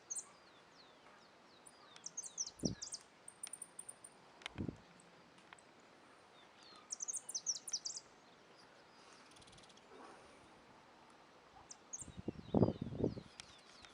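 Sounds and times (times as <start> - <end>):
faint background hiss: 0.0 - 13.9
small bird chirping: 1.6 - 5.7, 6.4 - 9.9.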